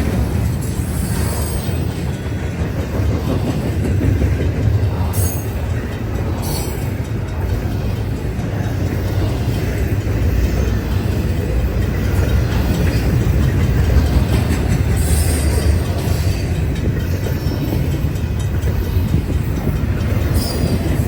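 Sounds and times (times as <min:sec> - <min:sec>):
freight train wheels rumbling on rails: 0:00.0 - 0:21.0.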